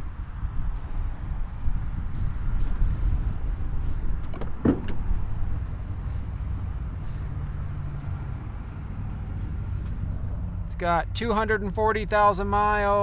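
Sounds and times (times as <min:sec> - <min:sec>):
engine exhaust rumble: 0:00.0 - 0:13.0.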